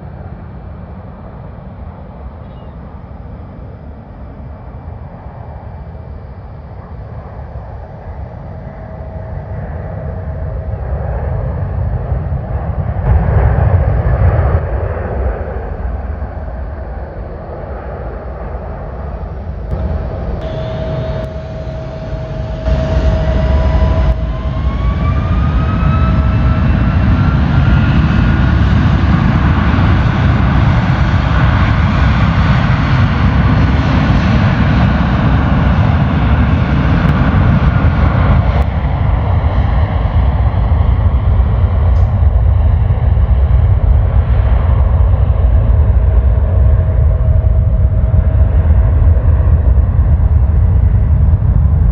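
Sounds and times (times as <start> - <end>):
jet engines spooling up: 13.1 - 39.0.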